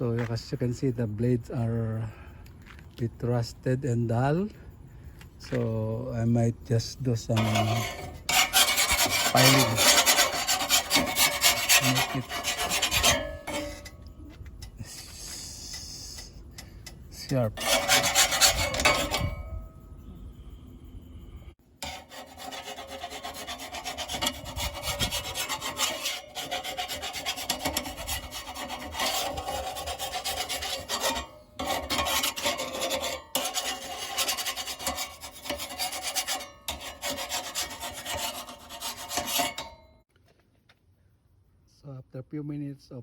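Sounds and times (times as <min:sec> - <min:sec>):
hand file rasping on steel: 0:07.3 - 0:14.0, 0:17.2 - 0:19.5, 0:21.8 - 0:39.8.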